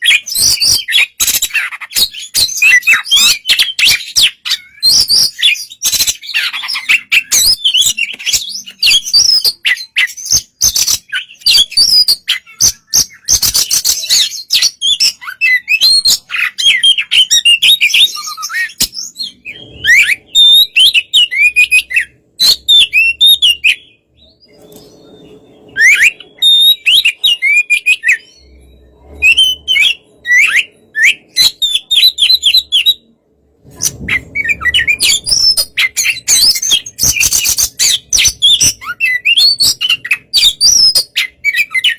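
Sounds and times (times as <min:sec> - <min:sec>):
songbird singing: 0:00.0 - 0:33.2.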